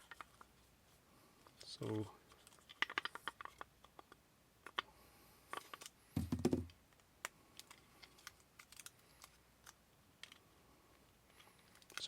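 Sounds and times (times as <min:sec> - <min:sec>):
dull thump: 0:06.2 - 0:06.7.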